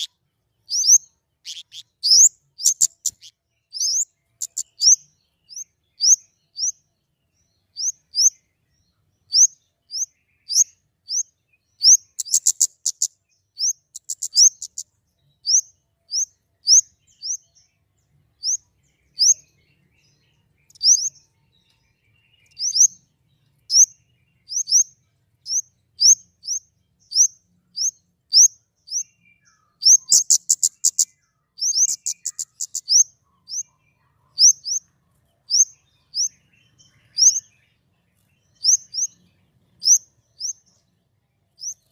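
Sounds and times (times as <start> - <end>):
bird chip notes and ticks: 0.0 - 6.8, 11.9 - 14.9, 20.6 - 24.0, 29.8 - 33.1.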